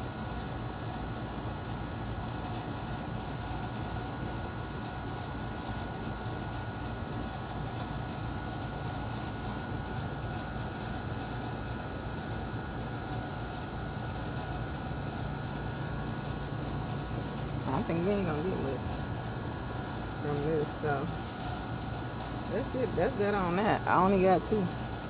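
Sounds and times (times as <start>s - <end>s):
faint steady tones: 22.2s - 25.0s.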